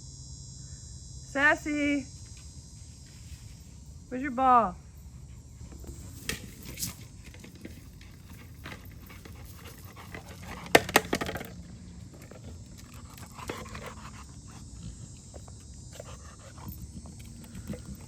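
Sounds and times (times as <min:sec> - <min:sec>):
dog moving about: 0:05.7 - 0:14.3
dog panting: 0:07.8 - 0:11.2, 0:12.1 - 0:18.0.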